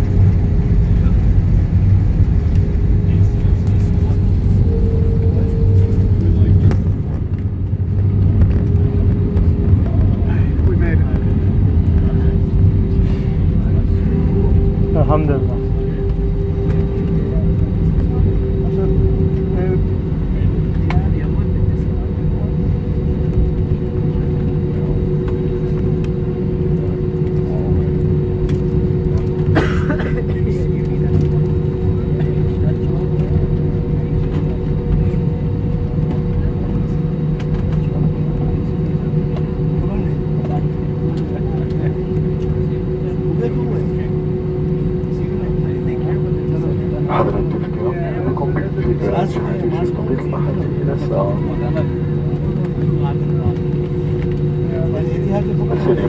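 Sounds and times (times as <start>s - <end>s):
higher hum: 0.0s - 56.0s
jet engine cabin rumble: 0.0s - 56.0s
steady hum: 0.0s - 56.0s
two-note hum: 2.5s - 7.5s, 8.2s - 21.7s.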